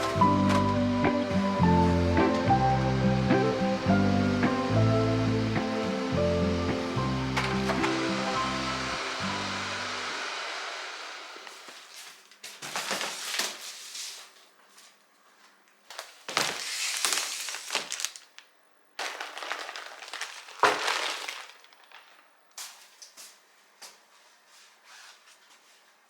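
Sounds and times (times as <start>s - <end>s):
plastic bags rustling: 11.5s - 23.2s.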